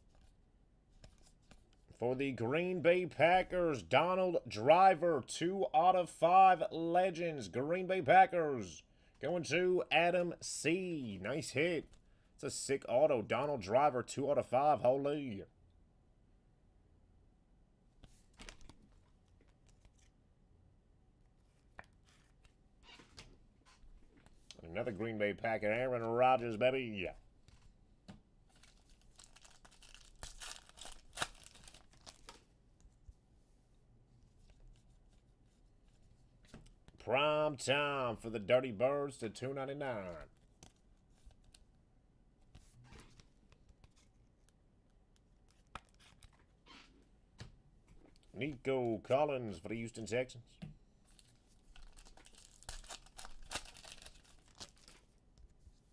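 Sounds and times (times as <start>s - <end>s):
trading cards being handled: 0.0s - 2.0s, 18.0s - 20.2s, 27.4s - 33.0s, 42.4s - 44.6s, 45.2s - 46.6s, 51.0s - 55.9s
card packaging rustling: 28.5s - 32.5s, 51.1s - 55.2s.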